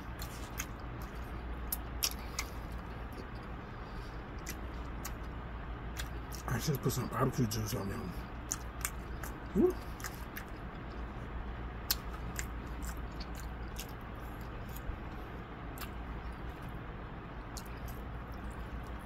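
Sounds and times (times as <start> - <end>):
person chewing food: 0.0 - 6.5, 8.2 - 19.0
steady low hum: 0.0 - 19.0
wet mouth clicks and smacks: 0.1 - 3.5, 4.4 - 6.5.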